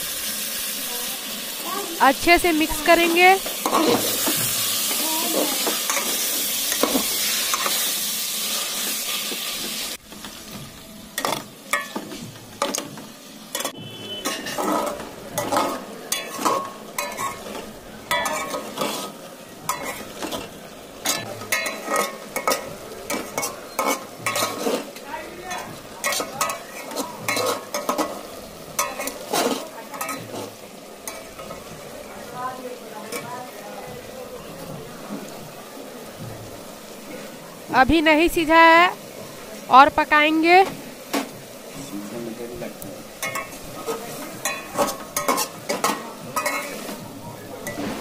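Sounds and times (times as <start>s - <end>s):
food sizzling in pot: 0.0s - 48.0s
spatula scraping metal pot: 13.6s - 20.5s, 21.1s - 25.0s, 28.8s - 31.6s.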